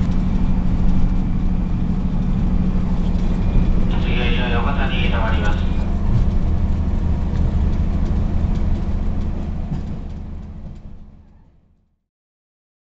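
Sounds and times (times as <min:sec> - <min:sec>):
train rumble from inside carriage: 0:00.0 - 0:12.0.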